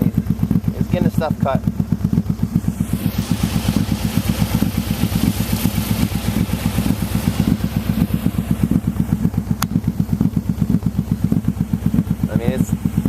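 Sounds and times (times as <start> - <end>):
atv engine running: 0.0 - 13.0
sharp tick: 9.6 - 9.8.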